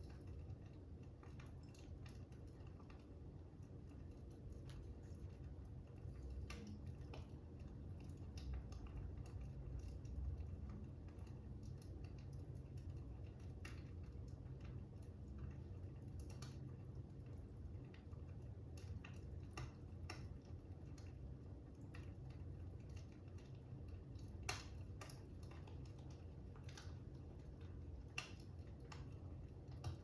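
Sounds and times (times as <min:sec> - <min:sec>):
fire crackling: 0:00.0 - 0:30.0
low steady rumble: 0:00.0 - 0:30.0.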